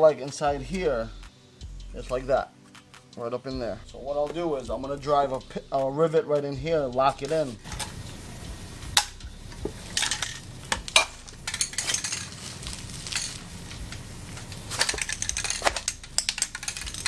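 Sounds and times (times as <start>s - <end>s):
light metal clicks and clinks: 10.0s - 17.0s.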